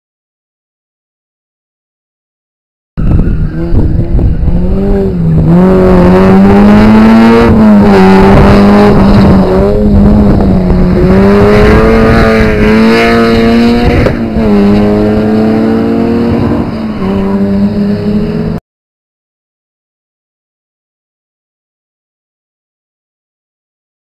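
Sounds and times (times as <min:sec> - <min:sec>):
race car engine at high revs: 0:03.0 - 0:18.6.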